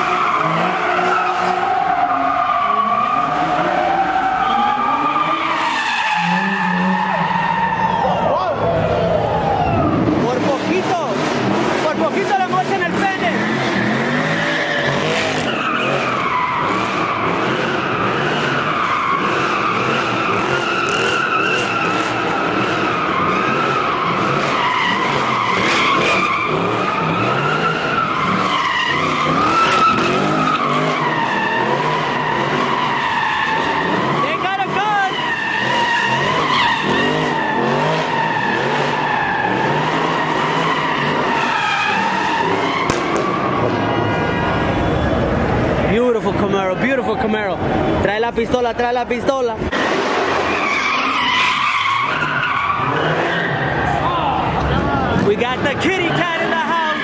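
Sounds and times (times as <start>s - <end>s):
car engine running hard: 0.0s - 48.5s
tyres squealing: 11.9s - 44.6s
sharp crack: 42.8s - 43.4s.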